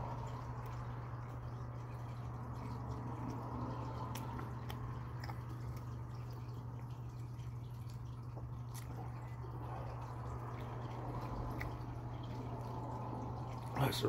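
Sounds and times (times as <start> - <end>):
wet chewing: 0.0 - 13.8
steady low hum: 0.0 - 14.0.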